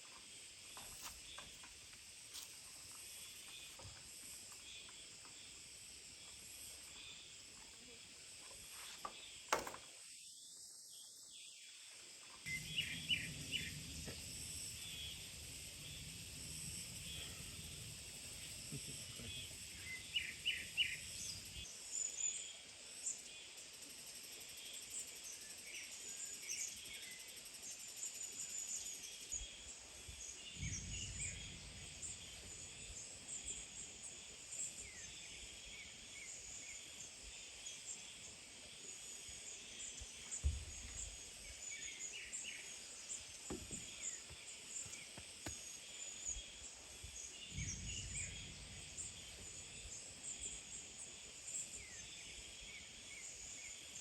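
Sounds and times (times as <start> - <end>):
insects humming: 0.0 - 54.0
short low rumbles: 12.5 - 19.8, 30.6 - 32.8, 47.5 - 49.8
birds chirping: 12.5 - 21.7, 39.9 - 53.8.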